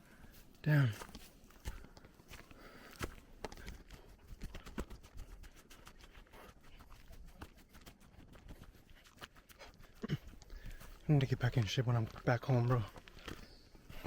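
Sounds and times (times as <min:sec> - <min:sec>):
footsteps on a path: 0:00.0 - 0:14.0.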